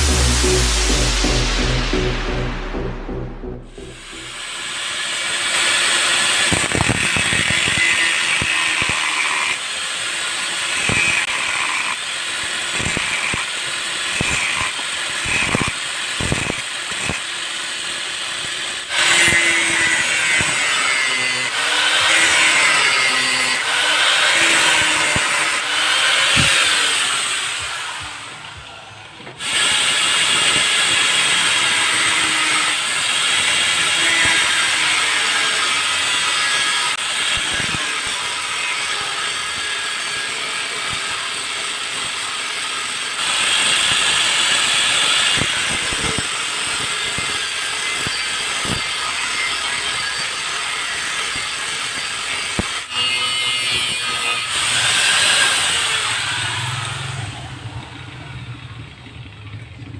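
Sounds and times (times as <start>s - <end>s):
motorcycle engine revving: 54.6s - 59.9s.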